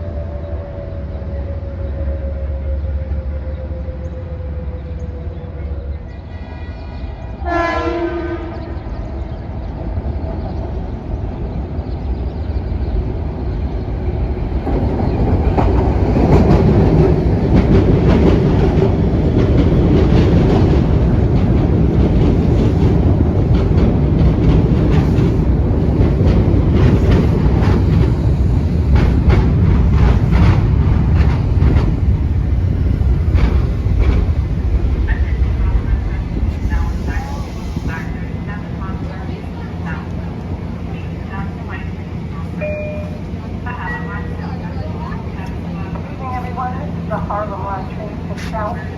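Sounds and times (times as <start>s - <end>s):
train rumbling on rails: 0.0s - 48.9s
train horn: 6.2s - 8.8s.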